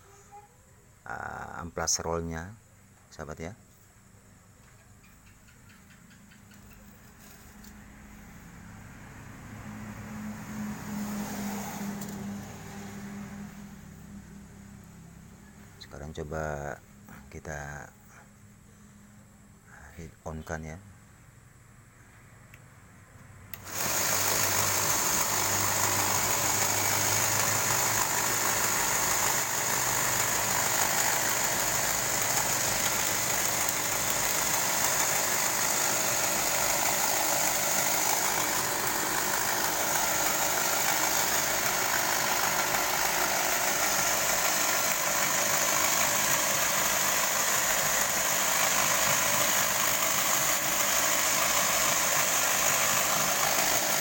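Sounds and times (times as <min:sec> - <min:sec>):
belt grinder running: 0:10.7 - 0:13.6, 0:23.5 - 0:54.0.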